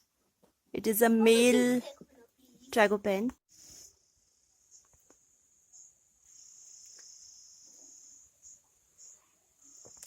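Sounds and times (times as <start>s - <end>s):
faint insect chirring: 4.0s - 10.0s.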